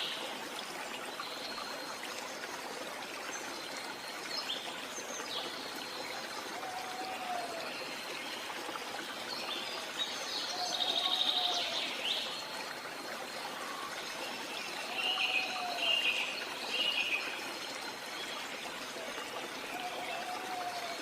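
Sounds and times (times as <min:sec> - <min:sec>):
waterfall rushing: 0:06.4 - 0:08.0, 0:18.9 - 0:21.0.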